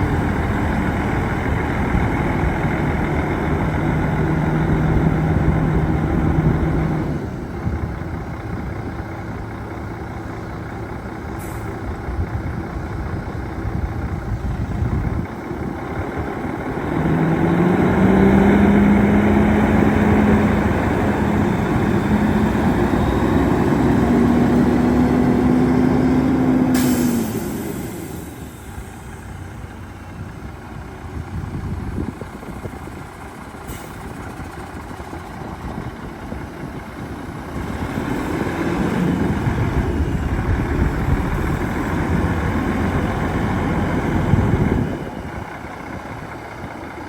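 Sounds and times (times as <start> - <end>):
truck diesel engine running: 0.0 - 47.0
short air hiss: 11.4 - 11.8, 26.8 - 28.6, 33.6 - 34.2.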